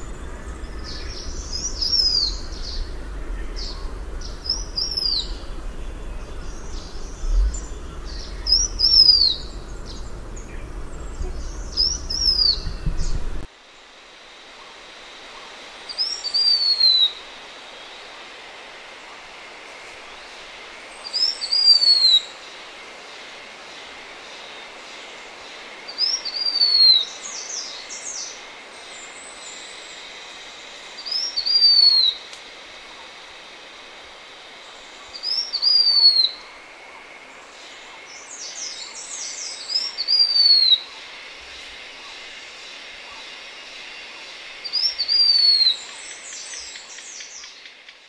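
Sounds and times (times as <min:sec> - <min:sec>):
bird singing high thin phrases: 0:00.0 - 0:13.5
faint steady hiss: 0:00.0 - 0:48.0.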